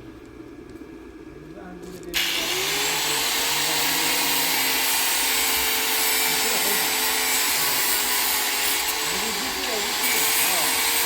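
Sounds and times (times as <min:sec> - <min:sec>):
electric power tool whining: 0:02.2 - 0:11.0.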